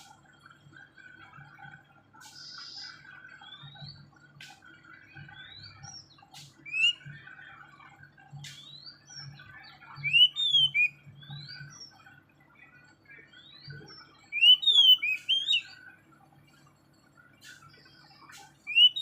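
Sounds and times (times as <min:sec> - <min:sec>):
small bird chirping: 0:02.2 - 0:07.2, 0:08.4 - 0:12.1, 0:13.1 - 0:15.9, 0:17.4 - 0:19.0.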